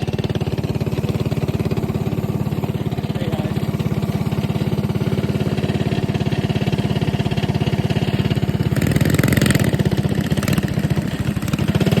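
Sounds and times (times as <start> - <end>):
mini bike engine running: 0.0 - 12.0.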